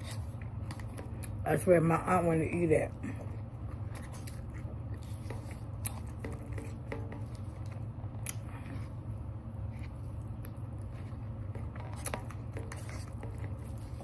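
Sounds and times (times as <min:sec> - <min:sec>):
eating clicks and scrapes: 0:03.2 - 0:09.0, 0:09.6 - 0:14.0
person chewing salad: 0:03.2 - 0:14.0.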